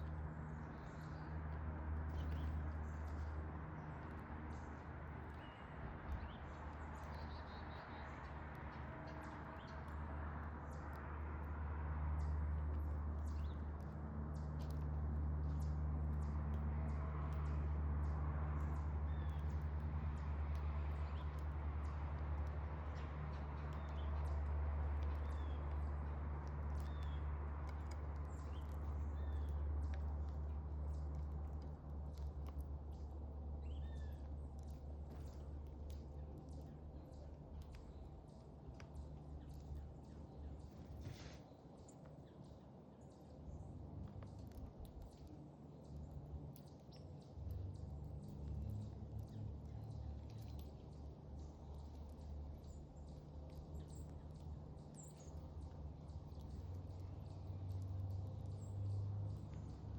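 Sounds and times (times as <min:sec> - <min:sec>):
songbirds chirping: 0:00.0 - 0:59.9
faint clicks: 0:12.2 - 0:42.2, 0:43.9 - 0:59.9.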